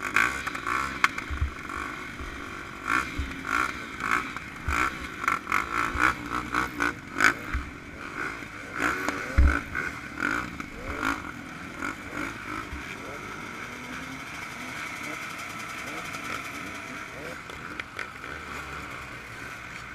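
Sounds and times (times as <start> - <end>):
clatter: 0.0 - 19.9
dirt bike engines revving: 0.0 - 19.9
low thumps: 1.2 - 2.5, 7.4 - 7.8.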